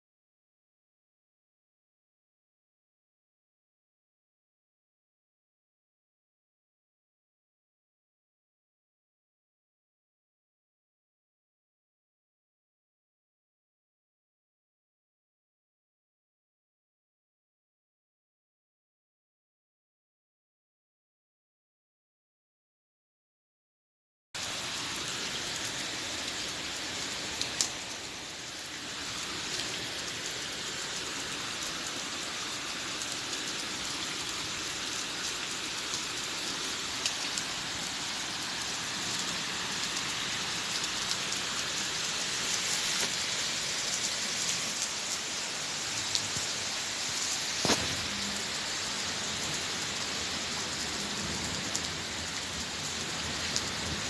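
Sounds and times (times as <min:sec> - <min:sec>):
steady rain falling: 0:24.4 - 0:54.0.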